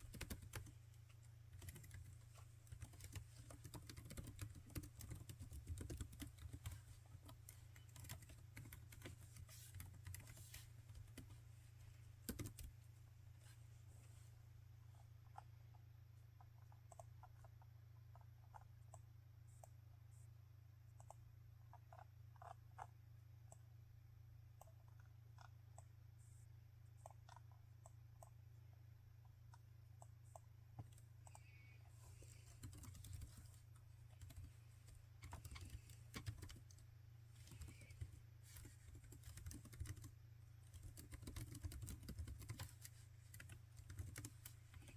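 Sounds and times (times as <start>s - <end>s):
typing on laptop keyboard: 0.0s - 0.8s, 1.5s - 11.3s, 12.2s - 12.7s, 16.6s - 19.0s, 32.2s - 36.8s, 37.4s - 44.9s.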